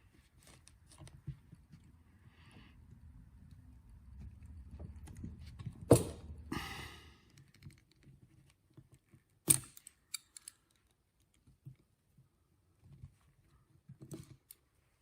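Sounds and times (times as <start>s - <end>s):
tools clacking: 9.0s - 11.4s.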